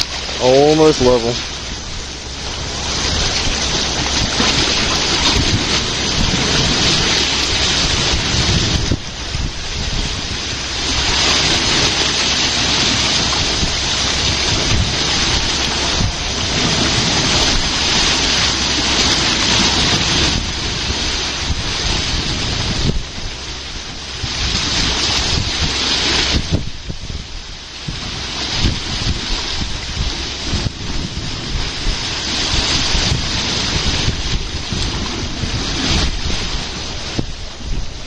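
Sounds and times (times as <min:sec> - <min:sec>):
water rushing: 0:00.0 - 0:38.0
wind buffeting microphone: 0:00.0 - 0:38.0.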